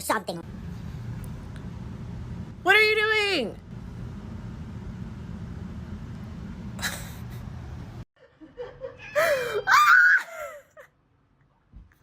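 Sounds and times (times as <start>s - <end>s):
steady low rumble: 0.4s - 3.0s
person laughing loudly: 8.2s - 10.9s.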